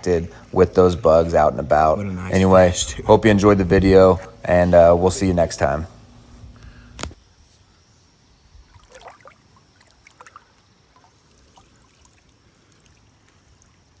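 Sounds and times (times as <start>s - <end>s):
river water trickling: 8.6s - 14.0s
small splashes: 8.6s - 14.0s.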